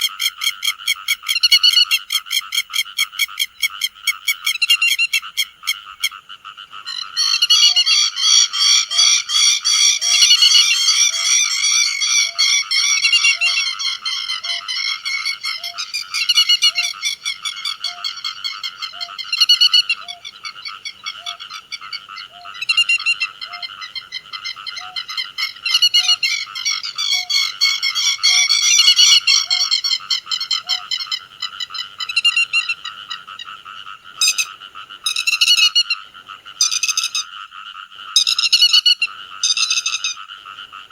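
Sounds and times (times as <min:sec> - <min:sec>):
lapwings calling: 0:06.8 - 0:33.5, 0:34.2 - 0:36.0, 0:38.2 - 0:40.2.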